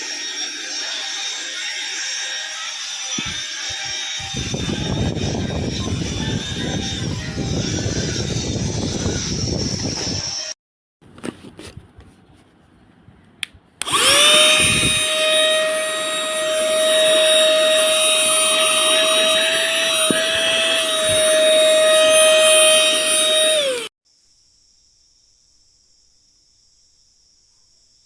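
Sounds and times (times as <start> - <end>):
vacuum motor whining: 3.2 - 7.8, 13.8 - 23.9.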